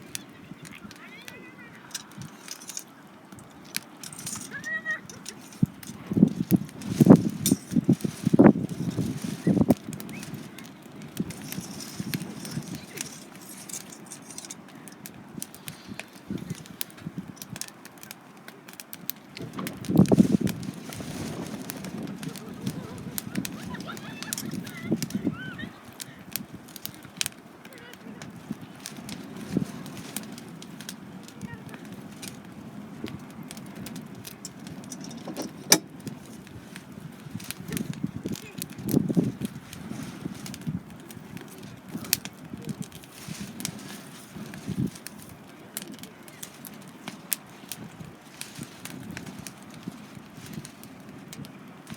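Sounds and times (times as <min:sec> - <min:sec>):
wood fire crackling and popping: 0:00.0 - 0:51.9
low bumps: 0:34.4 - 0:36.1.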